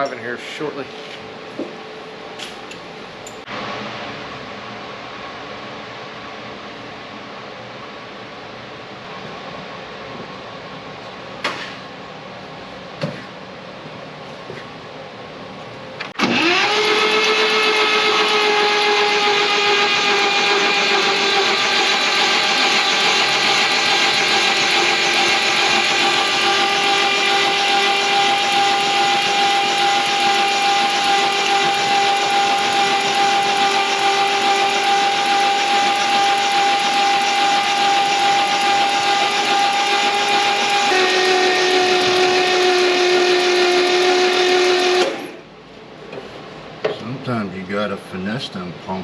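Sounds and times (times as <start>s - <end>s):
machine motor whining: 16.1s - 45.5s.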